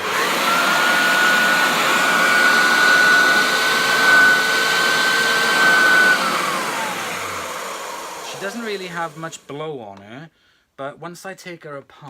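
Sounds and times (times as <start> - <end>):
vacuum cleaner motor whine: 0.0 - 9.5.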